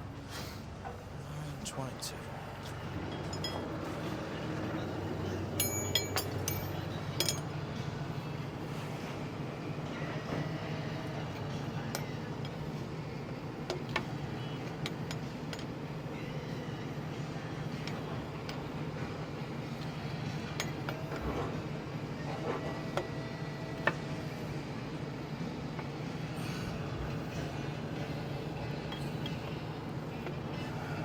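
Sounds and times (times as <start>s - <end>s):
steady low hum: 0.0s - 31.0s
metal tools clinking: 3.0s - 4.1s, 5.4s - 7.5s, 28.2s - 29.6s.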